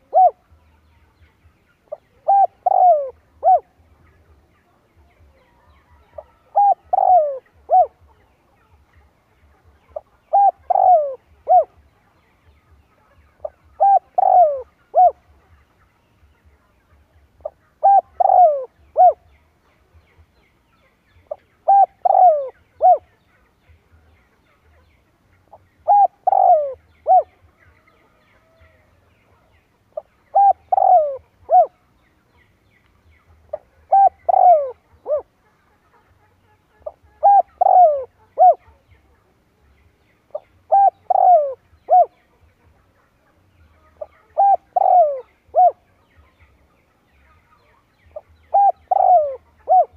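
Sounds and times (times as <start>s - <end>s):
dove cooing: 0.0s - 0.6s, 1.9s - 3.8s, 5.8s - 8.2s, 9.9s - 11.8s, 13.4s - 15.3s, 17.4s - 19.2s, 21.3s - 23.1s, 25.8s - 28.9s, 30.0s - 31.8s, 33.5s - 35.4s, 36.8s - 38.8s, 40.3s - 42.2s, 44.0s - 45.8s, 48.2s - 49.9s.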